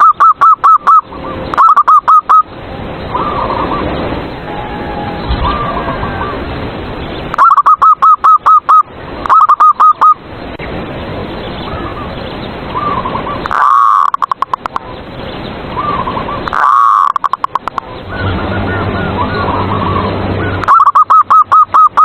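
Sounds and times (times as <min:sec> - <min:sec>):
doves cooing: 0:03.1 - 0:06.5, 0:12.7 - 0:14.8, 0:15.8 - 0:22.0.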